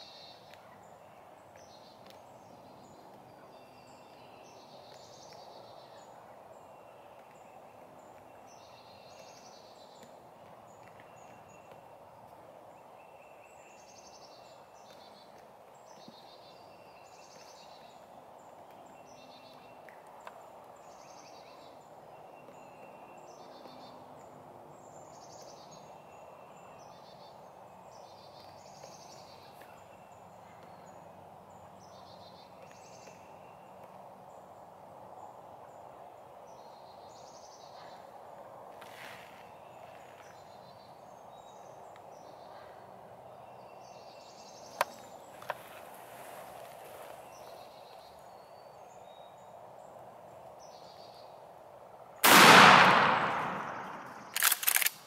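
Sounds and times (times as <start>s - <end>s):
songbird singing: 0.0s - 54.9s
low hiss: 52.2s - 54.4s.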